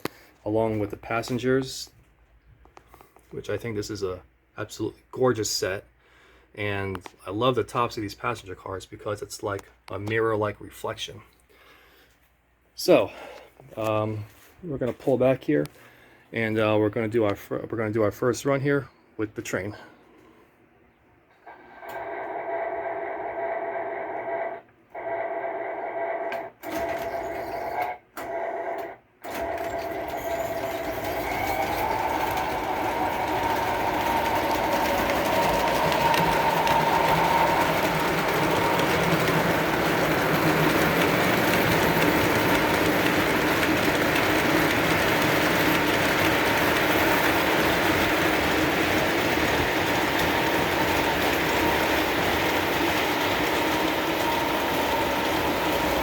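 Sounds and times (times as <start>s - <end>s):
model train hum: 29.2s - 56.0s
model train wheels on track: 29.2s - 56.0s.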